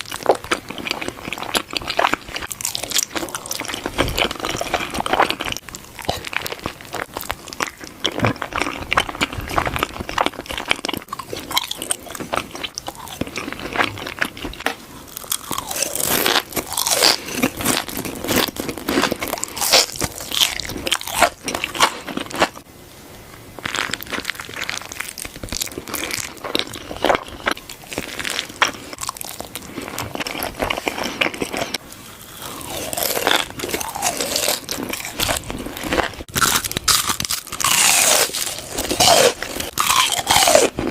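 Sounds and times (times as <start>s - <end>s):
person chewing crunchy food: 0.0s - 22.7s, 23.6s - 40.9s.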